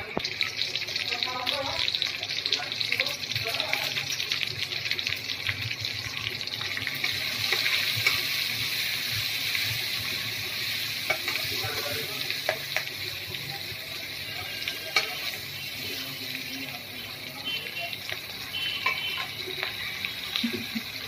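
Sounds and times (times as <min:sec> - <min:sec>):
food sizzling in hot oil: 0:00.0 - 0:21.0
metal spatula clicking on pan: 0:18.8 - 0:19.8.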